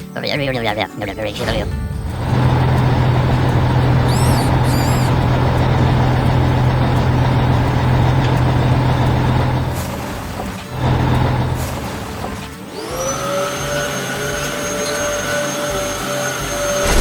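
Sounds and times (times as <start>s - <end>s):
heavy vehicle engine humming: 1.7s - 12.5s, 16.8s - 17.0s
high chirps: 3.9s - 5.2s.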